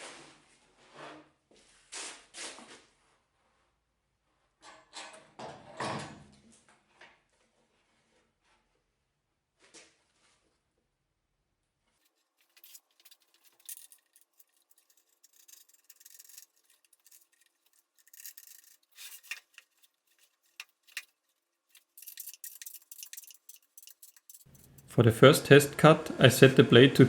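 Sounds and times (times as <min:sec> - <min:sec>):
faint scraping and rubbing: 0:11.9 - 0:26.8.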